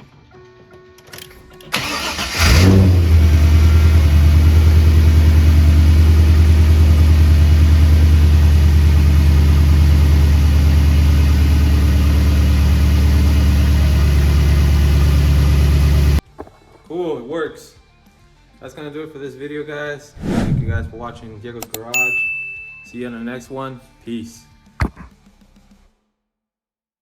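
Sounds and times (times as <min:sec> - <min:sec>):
engine starter cranking: 0:01.1 - 0:04.7
car engine idling: 0:01.4 - 0:16.2.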